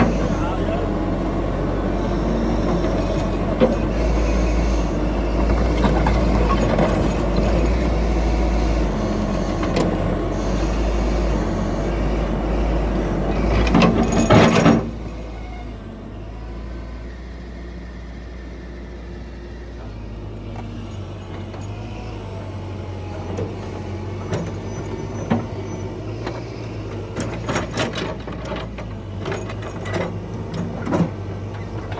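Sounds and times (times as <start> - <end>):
heavy diesel machinery rumbling: 0.0 - 31.9.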